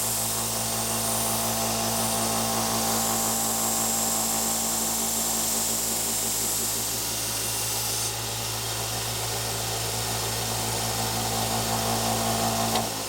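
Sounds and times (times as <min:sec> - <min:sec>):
blade grinding on belt sander: 0:00.0 - 0:08.2
sander motor hum: 0:00.0 - 0:13.0.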